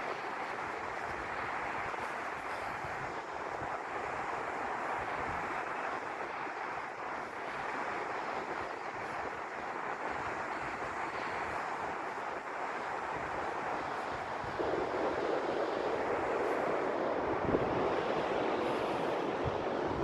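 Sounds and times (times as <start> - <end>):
wind buffeting microphone: 8.1 - 20.0.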